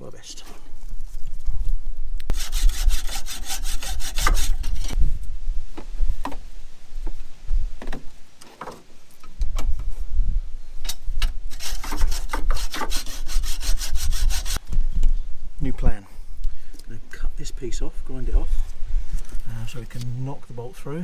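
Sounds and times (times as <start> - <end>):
hacksaw cutting metal: 2.3 - 4.9, 11.5 - 14.6.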